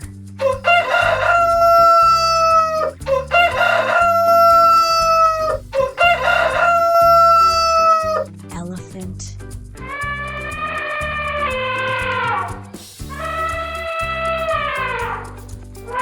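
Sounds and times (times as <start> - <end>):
rooster crowing: 0.4 - 8.3.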